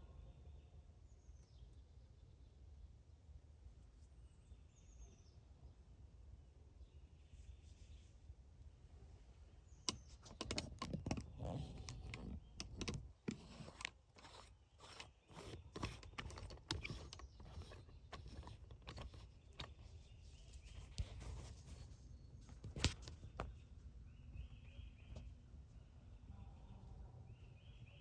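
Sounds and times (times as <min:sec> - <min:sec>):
sharp clicks and crunches: 0:09.9 - 0:19.9.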